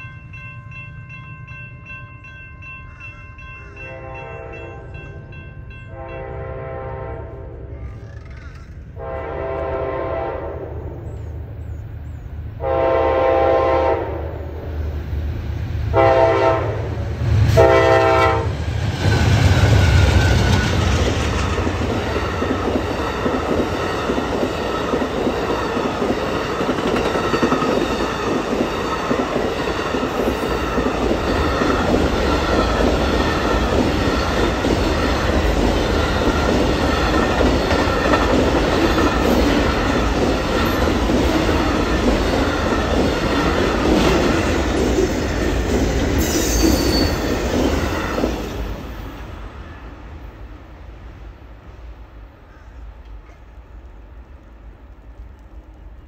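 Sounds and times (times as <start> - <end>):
diesel locomotives rumbling: 0.0 - 56.0
train horn blasts: 3.8 - 5.2, 5.9 - 7.7, 9.0 - 11.0, 12.6 - 14.4, 15.9 - 18.6
clickety-clack of train wheels: 17.4 - 49.2, 52.6 - 56.0.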